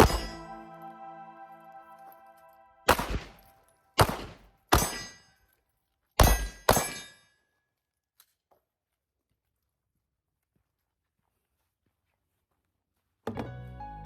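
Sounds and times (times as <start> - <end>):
pistol shots with ringing tail: 2.9 - 5.2, 6.2 - 7.2.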